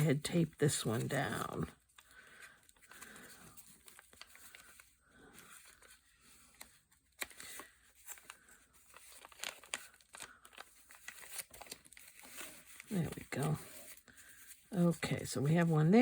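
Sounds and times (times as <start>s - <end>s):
paper crinkling and rustling: 0.0s - 16.0s
paper tearing: 7.2s - 13.6s.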